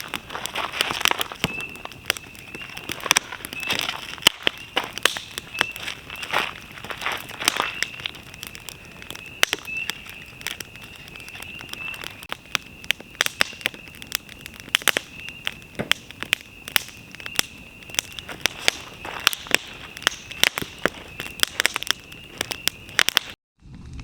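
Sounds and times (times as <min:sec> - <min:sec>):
sharp pops: 0:00.0 - 0:23.4
campfire crackling: 0:00.0 - 0:24.0.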